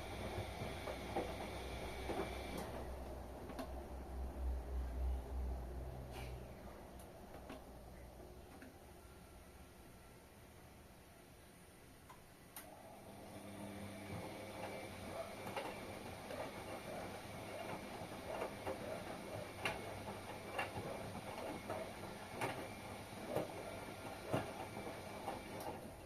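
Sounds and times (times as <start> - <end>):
washing machine swishing: 0.0 - 4.0, 12.9 - 26.0.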